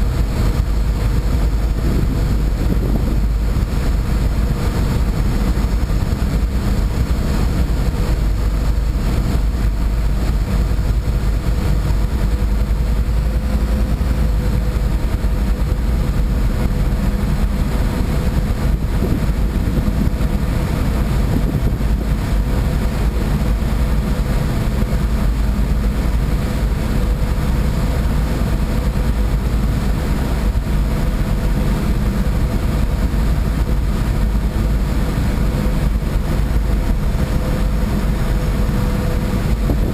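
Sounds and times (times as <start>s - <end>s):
boat engine rumbling: 0.0s - 39.9s.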